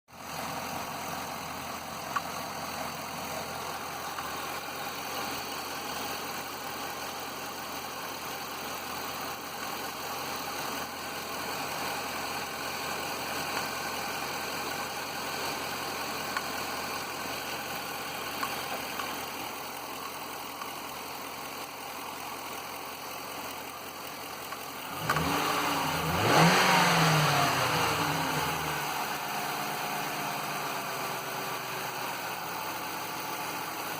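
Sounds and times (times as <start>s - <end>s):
car engine idling and revving: 0.1s - 33.9s.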